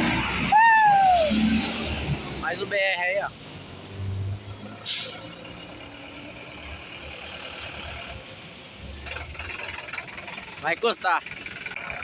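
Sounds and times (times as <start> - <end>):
diesel bus engine running: 4.4 - 12.0
air brake hiss: 4.8 - 5.4.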